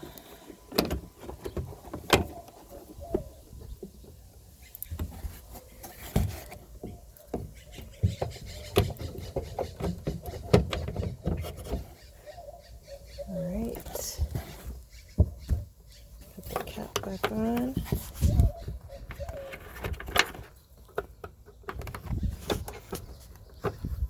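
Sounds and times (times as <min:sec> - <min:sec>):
plastic parts clicking and knocking: 0:06.0 - 0:11.9, 0:16.3 - 0:18.2, 0:19.0 - 0:24.0.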